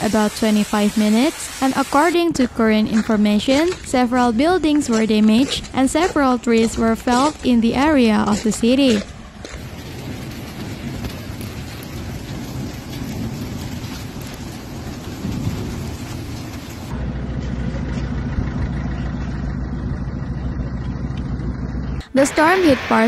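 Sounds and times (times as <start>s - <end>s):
rain and hail pelting: 0.0s - 2.2s, 9.5s - 16.9s
low rumble: 6.4s - 23.0s
dull rain patter: 9.4s - 17.0s.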